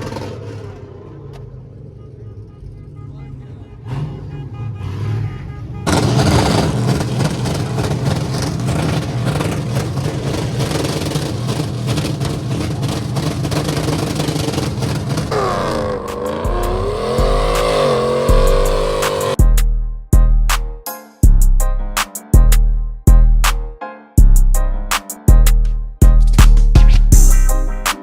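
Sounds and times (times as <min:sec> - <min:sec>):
truck engine revving: 0:00.0 - 0:01.8, 0:03.8 - 0:19.4
electronic music with deep bass: 0:15.3 - 0:28.0.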